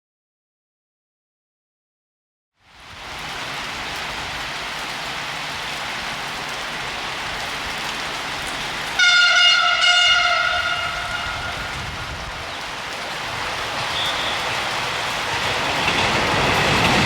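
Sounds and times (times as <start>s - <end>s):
electric train rushing past: 8.7s - 17.0s
train horn blast: 9.0s - 12.1s, 13.8s - 14.8s.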